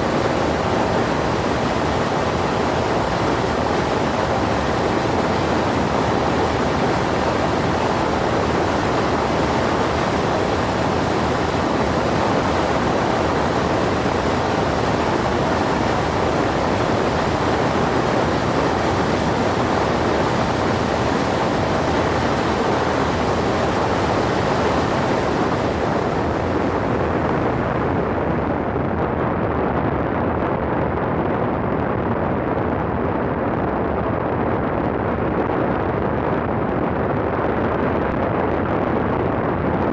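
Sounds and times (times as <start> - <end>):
aircraft cabin engine roar: 0.0 - 28.8
airflow rushing over airframe: 0.0 - 28.9.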